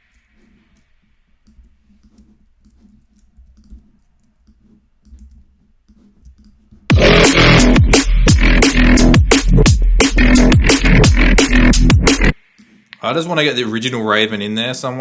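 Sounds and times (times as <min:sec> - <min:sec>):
mouse and keyboard clicking: 0:00.7 - 0:06.6.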